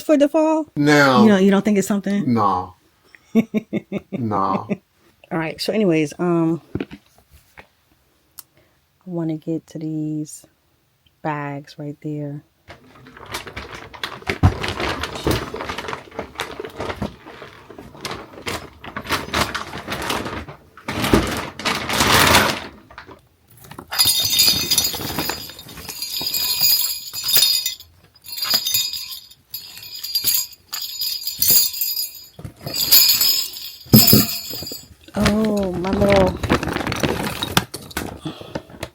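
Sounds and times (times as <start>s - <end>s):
bags rustling: 12.7s - 38.9s
decorations clinking together: 13.1s - 38.9s.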